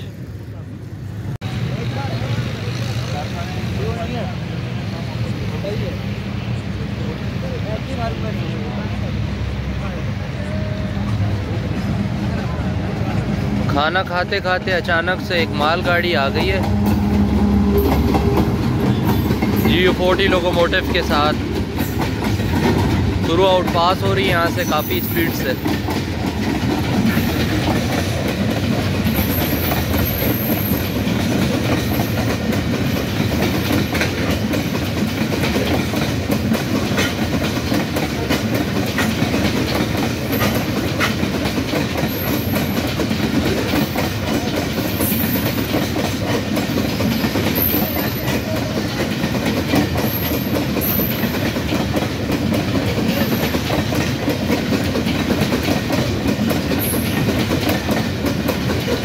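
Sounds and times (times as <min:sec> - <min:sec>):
freight train rumble: 0:00.0 - 0:59.0
wheels knocking over rail joints: 0:14.0 - 0:59.0.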